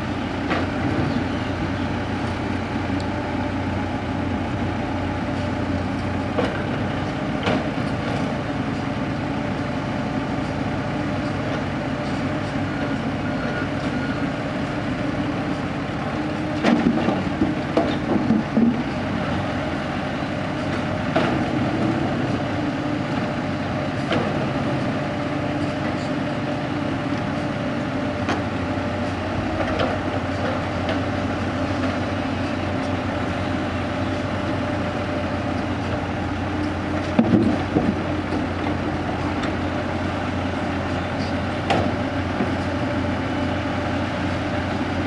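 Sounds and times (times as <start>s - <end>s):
diesel excavator engine: 0.0s - 45.0s
metal clanks and dirt knocks: 5.4s - 8.4s, 16.3s - 19.8s, 20.5s - 22.5s, 29.1s - 34.8s, 35.5s - 39.8s, 40.6s - 43.5s.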